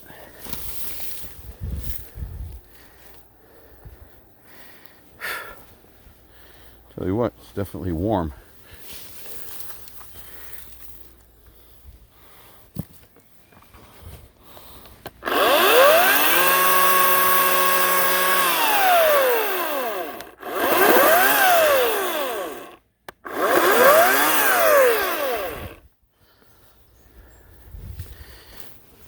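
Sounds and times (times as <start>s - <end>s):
electric chainsaw motor revving: 15.2s - 25.8s.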